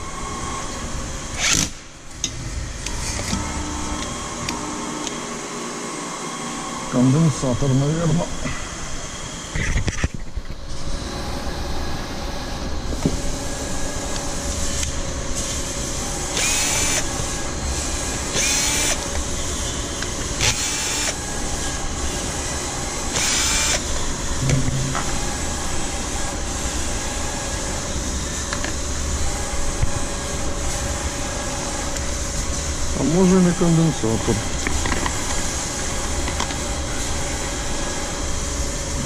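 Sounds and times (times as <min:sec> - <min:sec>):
electric motor humming: 0:16.0 - 0:19.4, 0:20.1 - 0:27.5.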